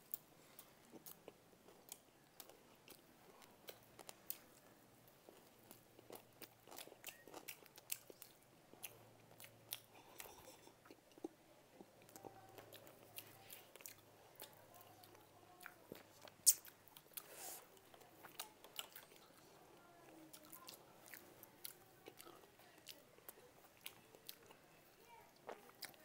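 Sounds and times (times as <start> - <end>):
people chewing food: 0.0 - 26.0
wet mouth clicks: 16.4 - 17.3.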